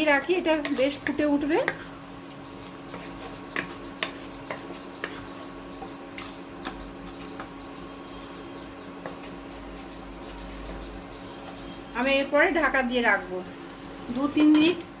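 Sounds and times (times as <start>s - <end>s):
spatula scraping metal pan: 0.6s - 2.0s.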